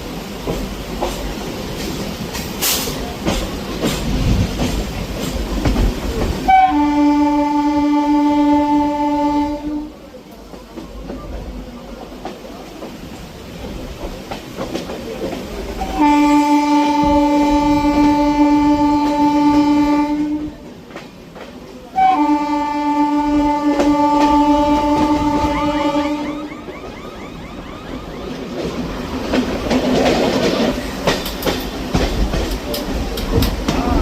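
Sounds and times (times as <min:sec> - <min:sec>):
train rumble and wheel clatter: 0:00.0 - 0:34.0
train horn blasts: 0:06.4 - 0:10.0, 0:15.8 - 0:20.7, 0:21.9 - 0:26.9.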